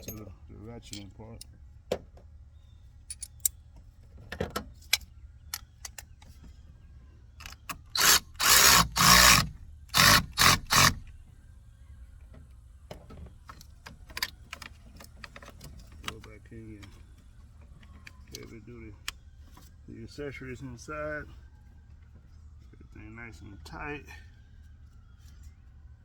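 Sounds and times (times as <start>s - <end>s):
ratchet wrench strokes: 8.0s - 11.1s.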